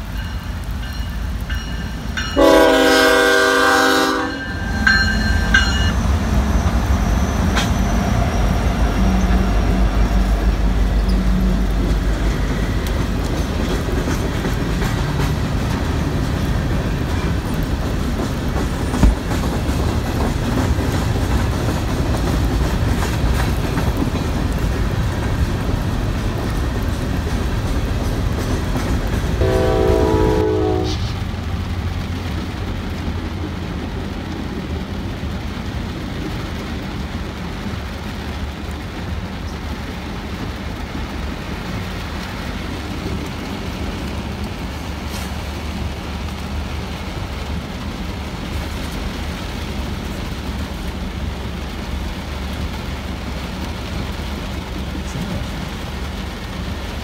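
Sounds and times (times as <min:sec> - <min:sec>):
freight train wheels rumbling: 0:00.0 - 0:57.0
muffled freight train rumble: 0:00.0 - 0:57.0
train horn: 0:02.3 - 0:05.0, 0:29.4 - 0:31.3.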